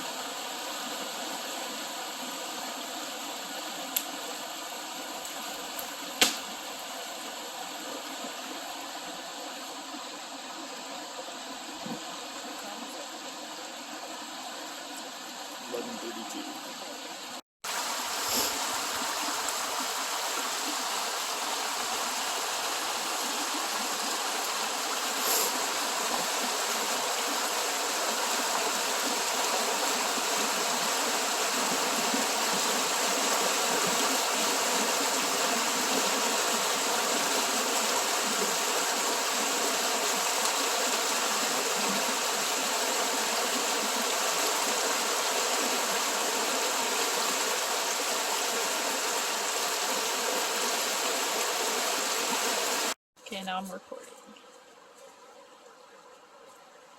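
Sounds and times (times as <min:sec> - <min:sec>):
river water rushing: 0:17.7 - 0:53.0.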